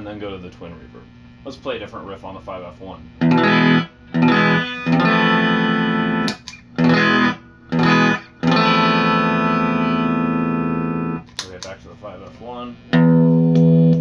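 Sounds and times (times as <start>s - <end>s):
electric guitar strummed chords: 3.2s - 11.8s, 12.8s - 14.0s.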